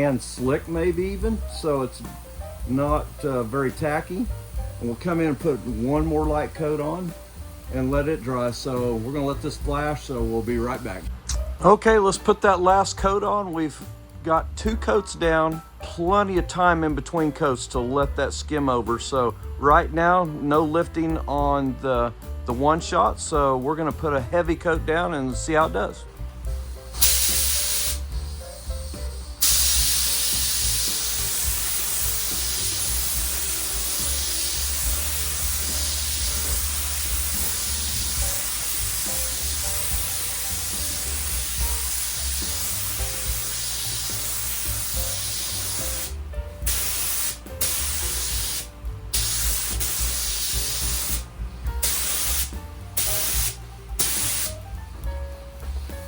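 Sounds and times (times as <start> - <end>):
paint sprayer hissing: 0.0 - 11.4, 25.5 - 56.0.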